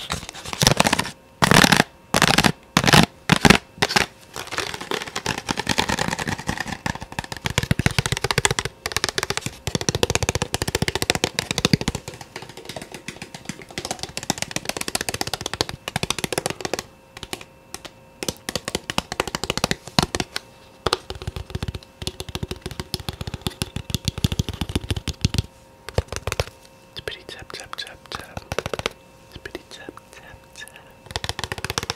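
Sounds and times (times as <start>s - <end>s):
rapid soft hand tapping: 3.4s - 26.5s, 27.5s - 29.0s, 31.0s - 31.9s.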